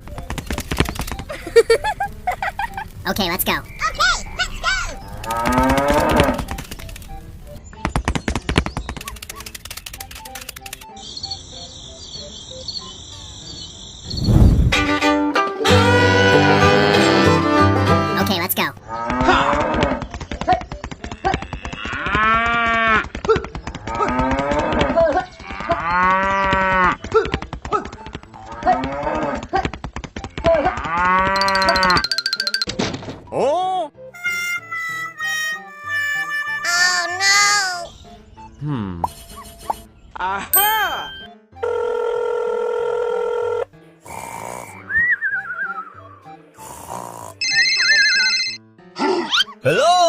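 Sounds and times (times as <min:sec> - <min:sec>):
background music: 0:00.0 - 0:14.0, 0:14.6 - 0:22.9, 0:23.7 - 0:50.0
cattle mooing: 0:05.2 - 0:06.4
fast clicking rattle: 0:08.8 - 0:10.9
short rushes of noise: 0:14.1 - 0:14.9
bright ringing chord: 0:40.6 - 0:41.5.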